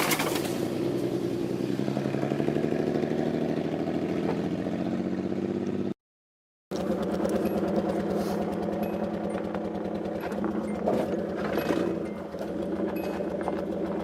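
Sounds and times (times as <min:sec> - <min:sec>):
car engine running: 0:06.7 - 0:14.0.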